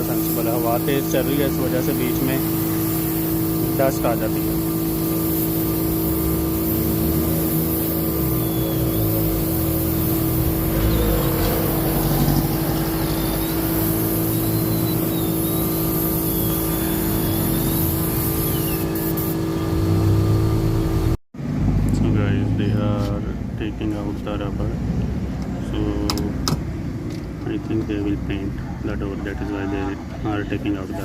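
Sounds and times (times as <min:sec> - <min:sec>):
motor droning: 0:00.0 - 0:21.2
faint short high chirps: 0:08.3 - 0:09.3, 0:13.0 - 0:19.8.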